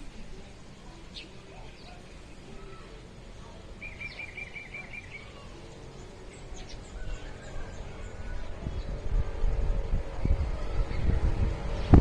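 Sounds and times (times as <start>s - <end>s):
steady background noise: 0.0s - 12.0s
bird chirping: 0.1s - 3.0s, 3.7s - 9.1s
thin high bird calls: 0.2s - 9.0s.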